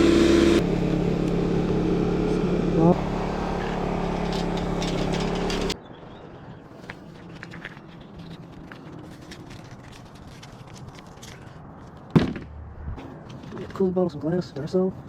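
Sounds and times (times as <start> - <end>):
engine running: 0.0 - 5.8.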